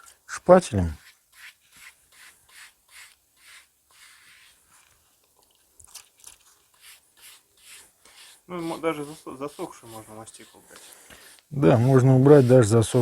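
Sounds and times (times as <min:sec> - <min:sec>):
spatula scraping brick: 0:06.7 - 0:13.0.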